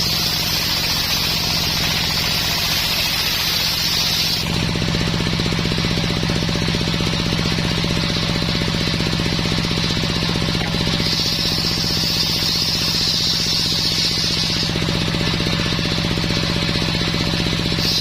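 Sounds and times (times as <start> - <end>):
saw blade hissing through wood: 0.0 - 4.8, 10.3 - 16.0, 17.4 - 18.0
engine pulsing drone: 0.0 - 18.0.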